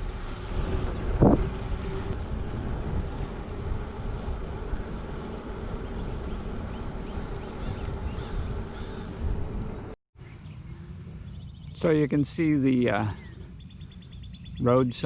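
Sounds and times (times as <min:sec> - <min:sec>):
wind buffeting the microphone: 0:00.0 - 0:14.6
bird calling: 0:05.8 - 0:09.1, 0:12.7 - 0:14.9.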